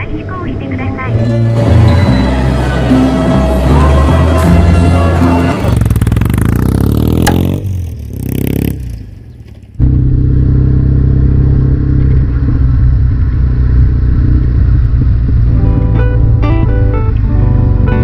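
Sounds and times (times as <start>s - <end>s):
motorcycle engine running: 5.3s - 18.0s.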